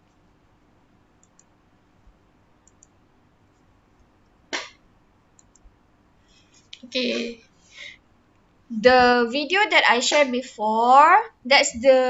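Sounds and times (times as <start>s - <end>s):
computer mouse clicks: 1.2s - 1.5s, 2.6s - 3.0s, 5.4s - 5.7s.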